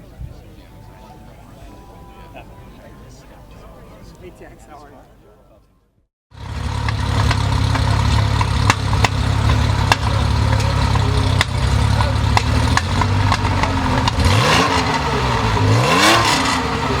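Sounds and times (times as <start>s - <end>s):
engine revs: 6.3s - 17.0s
exhaust pops: 6.3s - 17.0s
race car engine idling: 6.3s - 17.0s.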